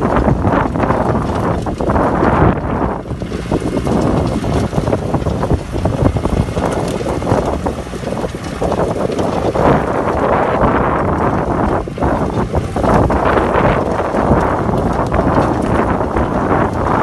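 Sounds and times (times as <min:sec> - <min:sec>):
tractor engine rough rumble: 0:00.0 - 0:17.0
wind buffeting microphone: 0:00.0 - 0:17.0.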